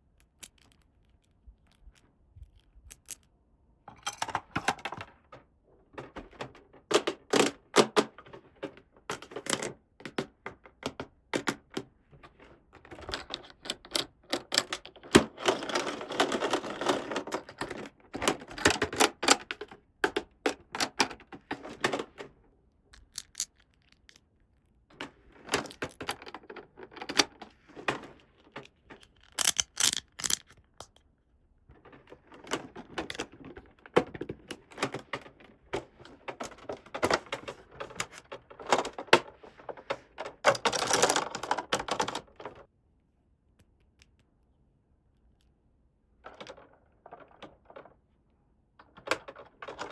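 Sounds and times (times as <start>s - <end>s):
plastic toy pieces clicking: 0.2s - 3.3s, 12.9s - 22.2s, 22.9s - 24.3s, 25.5s - 27.5s, 28.6s - 31.0s, 40.4s - 42.6s.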